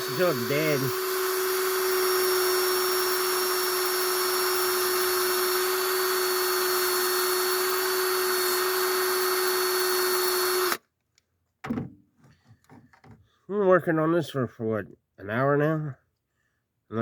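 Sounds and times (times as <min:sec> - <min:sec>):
cordless drill whine: 0:00.0 - 0:10.8.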